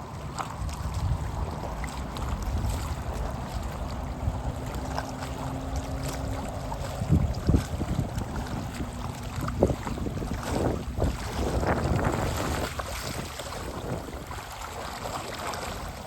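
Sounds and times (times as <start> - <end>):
river water flowing over shallows: 0.0 - 16.0
wind buffeting microphone: 0.0 - 16.0.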